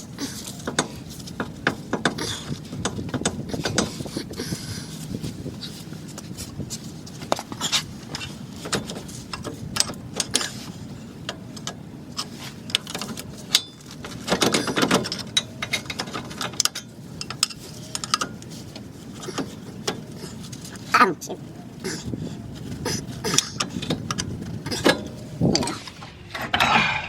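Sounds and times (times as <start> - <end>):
metal tools and parts clinking: 7.4 - 21.0.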